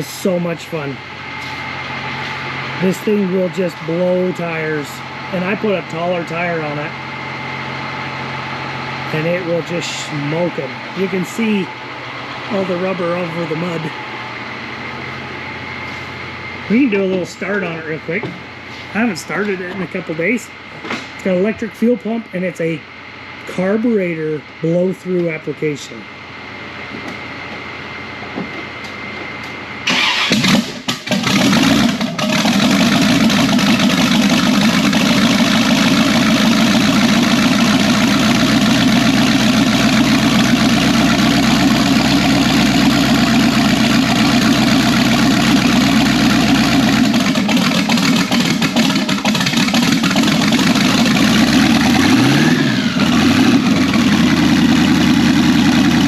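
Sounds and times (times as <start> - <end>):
engine idling: 0.0 - 24.8, 29.8 - 56.0
engine cranking and starting: 29.8 - 56.0
engine revving: 29.9 - 56.0.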